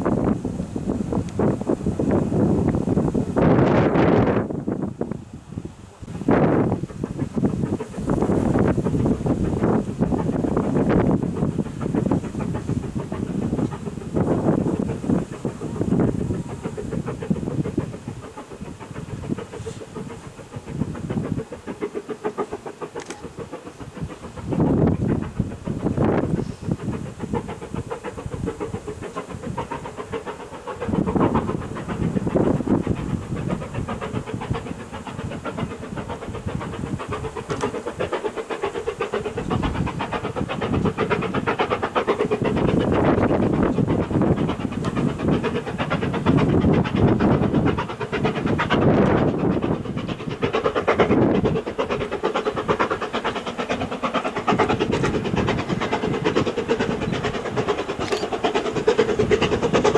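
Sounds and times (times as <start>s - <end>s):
steam locomotive exhaust beating: 0.0s - 59.9s.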